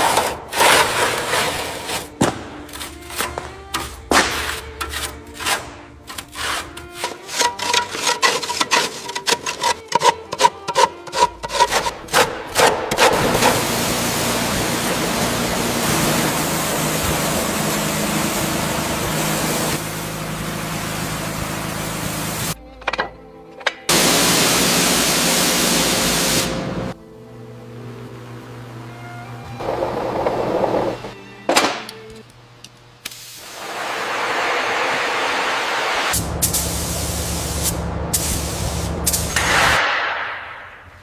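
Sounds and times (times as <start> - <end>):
scraping and rubbing strokes: 4.3 - 12.2
loud machine hiss with hum: 13.2 - 22.6, 23.9 - 27.0, 33.1 - 39.8.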